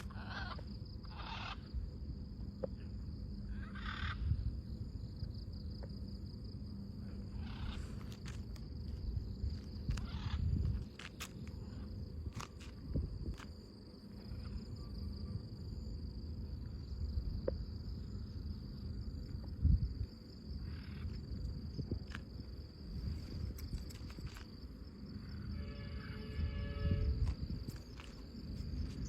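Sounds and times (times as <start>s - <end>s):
insect chirring: 0.0s - 29.0s
wind rumbling on microphone: 3.5s - 4.9s, 7.0s - 14.6s, 16.7s - 29.0s.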